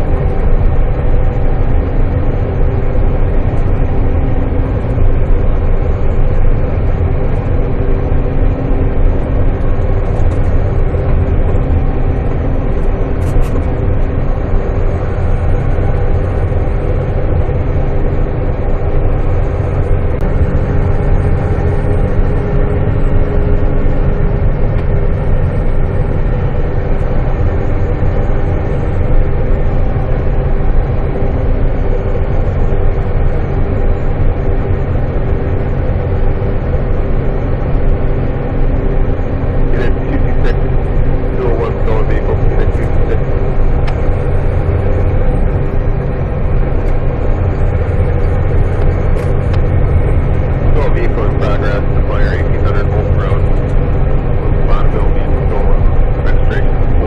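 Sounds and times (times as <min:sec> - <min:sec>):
road noise: 0:00.0 - 0:57.0
truck diesel engine: 0:00.0 - 0:57.0.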